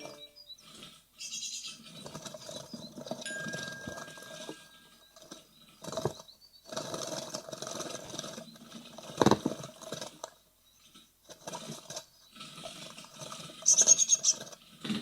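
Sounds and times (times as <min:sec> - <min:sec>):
faint high bird calls: 0:00.0 - 0:06.7, 0:13.6 - 0:14.4
nestlings scratching and scrabbling: 0:00.0 - 0:15.0.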